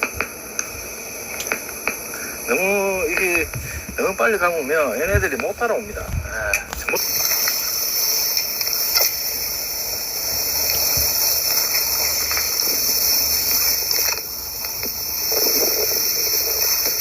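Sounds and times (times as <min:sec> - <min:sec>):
high-pitched hiss: 0:00.0 - 0:17.0.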